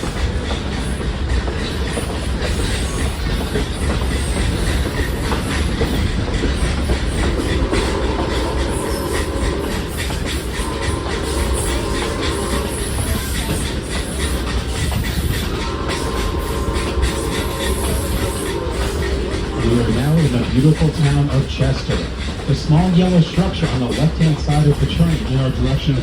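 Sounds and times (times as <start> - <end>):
train rumble: 0.0 - 26.0
wheels clicking over rail joints: 0.0 - 26.0.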